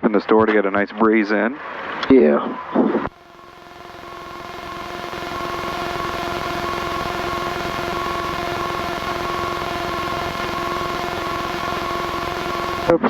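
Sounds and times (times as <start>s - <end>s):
light aircraft engine droning: 3.1s - 12.9s.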